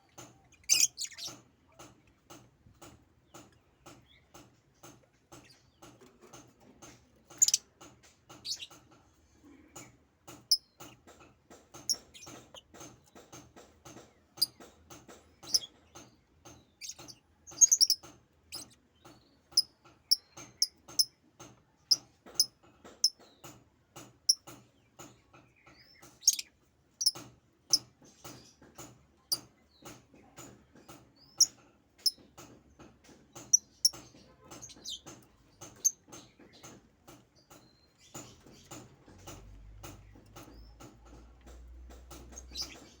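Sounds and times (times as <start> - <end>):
bird chirping: 0.0 - 1.5, 7.3 - 7.6, 8.3 - 8.8, 11.7 - 13.4, 14.4 - 21.1, 24.3 - 29.9, 33.0 - 43.0.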